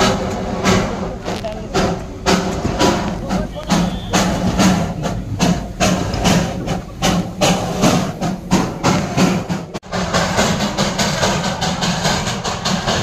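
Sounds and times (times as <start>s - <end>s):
low train rumble: 0.0s - 13.0s
train running with rhythmic beat: 0.0s - 13.0s.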